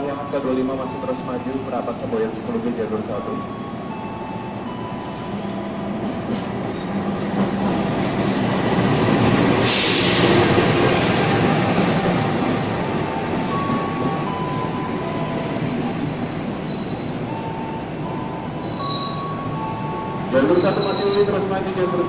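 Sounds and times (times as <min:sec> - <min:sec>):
air hiss burst: 0:09.6 - 0:10.6.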